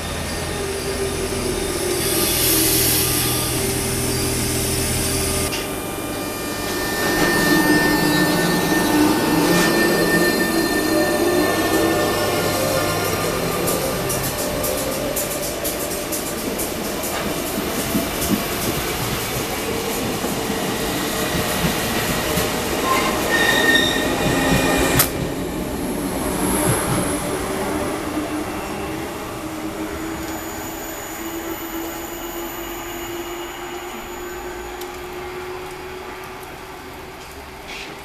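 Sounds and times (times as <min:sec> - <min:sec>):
wheel squeal: 0:00.0 - 0:19.6, 0:21.1 - 0:25.2
train wheels rumbling: 0:00.0 - 0:38.0.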